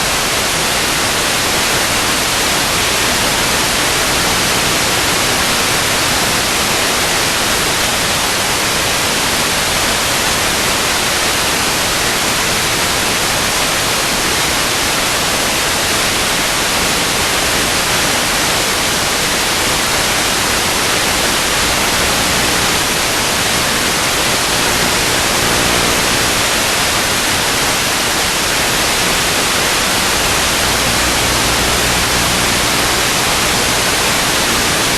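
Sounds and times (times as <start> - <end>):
static hiss: 0.0 - 34.9.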